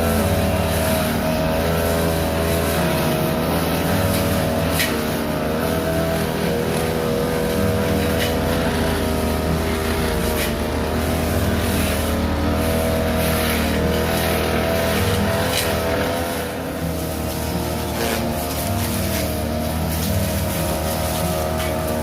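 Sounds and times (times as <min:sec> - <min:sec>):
brush cutter engine running: 0:00.0 - 0:22.0.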